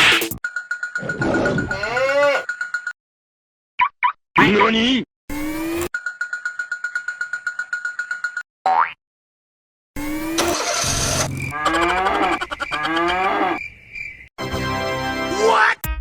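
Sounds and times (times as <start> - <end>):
cartoon background music: 14.4 - 16.0.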